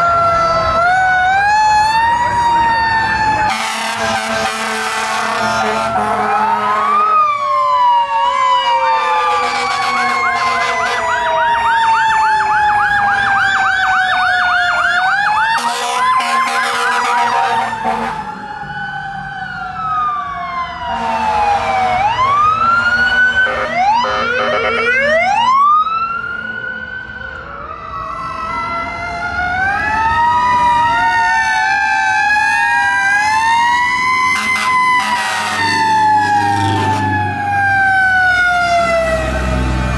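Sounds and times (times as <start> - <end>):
deep mechanical siren wail: 0.0 - 39.9
electronic siren sweeps: 27.8 - 39.9.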